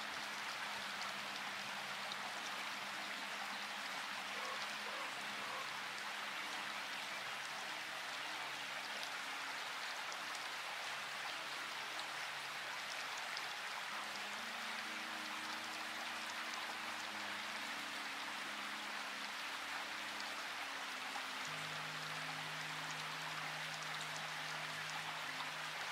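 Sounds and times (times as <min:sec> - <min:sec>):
steady rain: 0:00.0 - 0:25.9
soft background music: 0:11.6 - 0:25.9.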